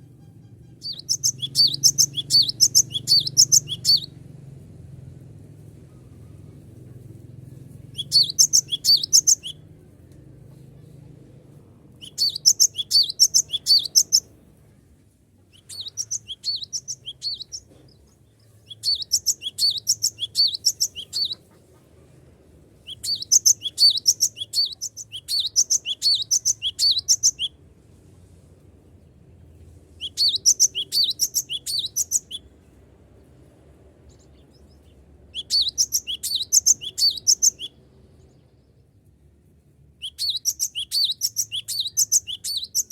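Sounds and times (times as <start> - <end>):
faint low hum: 0.0 - 42.9
bird singing rapid high notes: 0.4 - 4.2, 7.9 - 9.6, 12.0 - 14.2, 15.5 - 17.6, 18.7 - 21.4, 22.9 - 27.5, 30.0 - 32.4, 35.4 - 37.8, 40.0 - 42.9.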